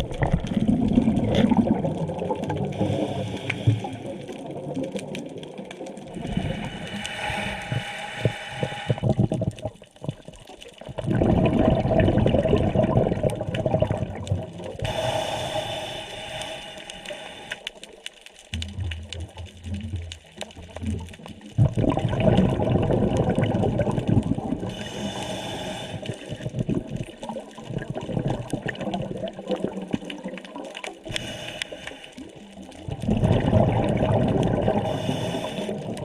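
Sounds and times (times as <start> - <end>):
exhaled bubbles rushing: 0.0 - 7.8, 8.9 - 14.9, 18.6 - 25.2, 25.9 - 31.1, 32.2 - 36.0
regulator hissing inhalation: 2.8 - 4.1, 6.5 - 9.1, 14.8 - 17.7, 24.7 - 26.4, 31.1 - 32.3, 34.8 - 36.0.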